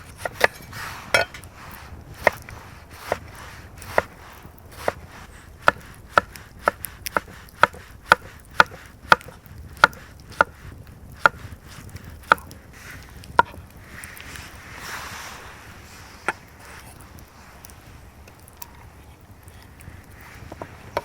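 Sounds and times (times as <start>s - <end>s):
blade chopping wood: 0.0s - 12.6s.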